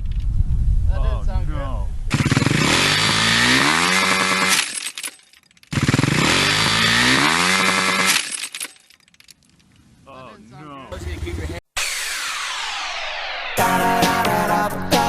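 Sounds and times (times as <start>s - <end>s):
motocross bike engine revving: 2.1s - 4.9s, 5.7s - 8.4s.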